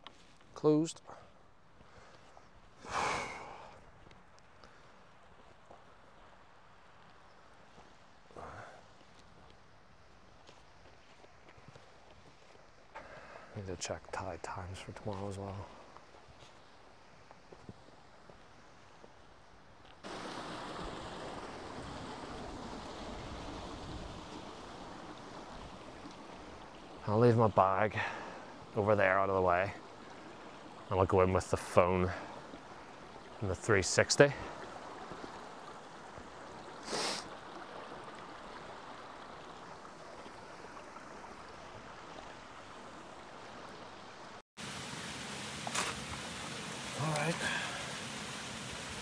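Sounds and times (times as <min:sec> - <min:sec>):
river water rushing: 0:20.0 - 0:27.1, 0:34.3 - 0:49.0.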